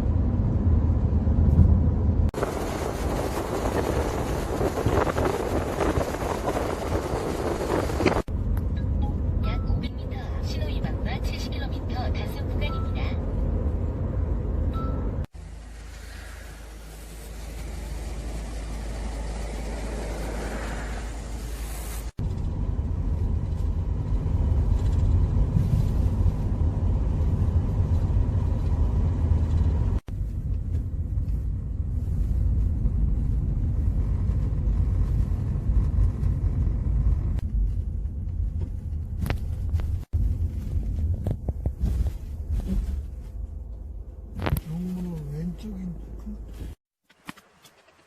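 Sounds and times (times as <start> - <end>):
car engine and road noise: 0.0 - 48.0.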